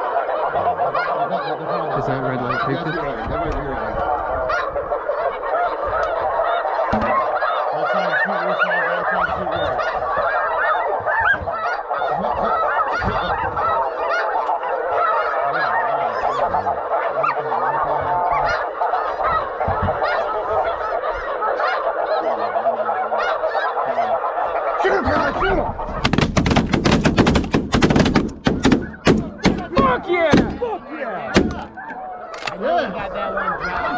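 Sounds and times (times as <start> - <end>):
geese honking: 0.0 - 33.9
shotgun blasts: 26.0 - 30.7, 31.4 - 31.8.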